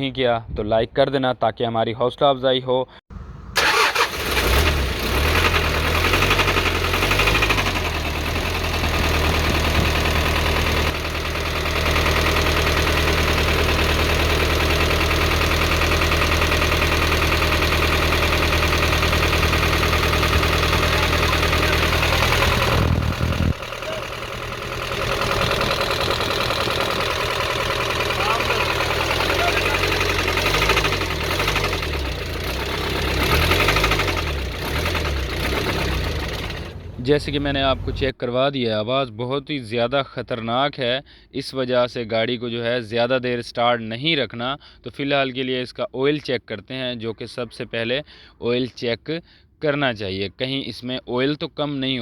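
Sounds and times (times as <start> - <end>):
diesel engine starting and running: 3.1 - 38.2
rhythmic engine knocking: 6.2 - 36.7.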